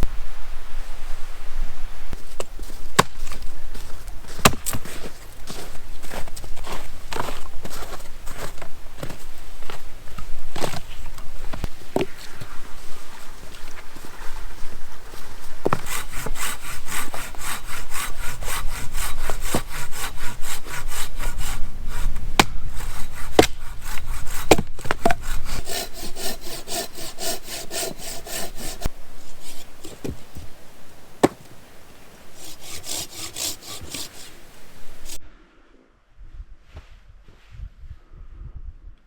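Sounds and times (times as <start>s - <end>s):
hand saw cutting wood: 15.6s - 35.2s
wood knocking: 24.5s - 30.5s, 31.2s - 31.6s.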